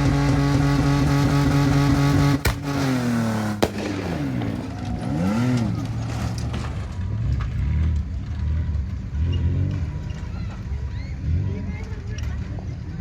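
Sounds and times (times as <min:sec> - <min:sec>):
truck engine revving: 0:00.0 - 0:13.0
sharp bangs: 0:01.1 - 0:07.1.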